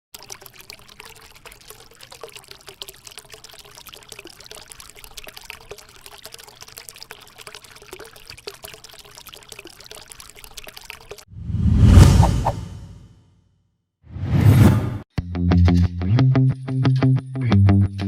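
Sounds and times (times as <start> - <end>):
fountain water pouring and trickling: 0.1 - 11.3
water drips and splashes: 0.1 - 11.3.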